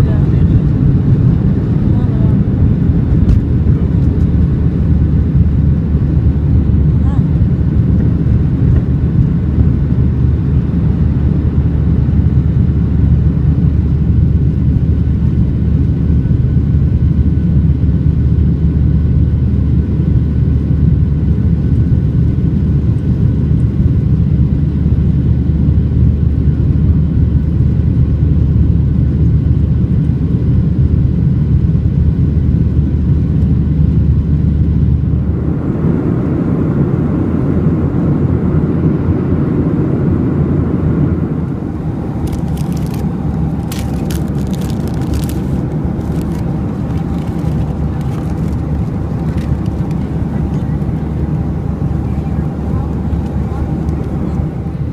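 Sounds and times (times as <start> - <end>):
airliner cabin rumble: 0.0 - 54.9.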